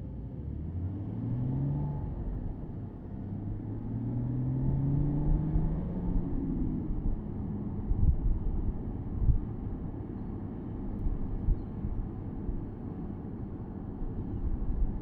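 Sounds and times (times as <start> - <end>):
road rumble: 0.0 - 15.0
car engine accelerating: 0.4 - 7.3.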